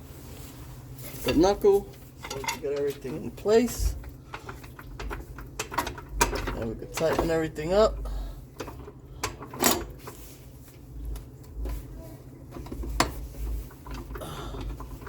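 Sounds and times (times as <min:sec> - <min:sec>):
metal clank: 0:02.2 - 0:03.0.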